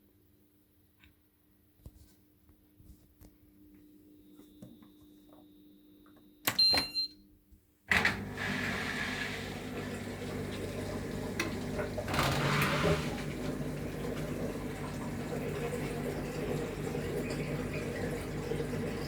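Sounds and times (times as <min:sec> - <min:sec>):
water rushing through machine: 0:07.9 - 0:19.0.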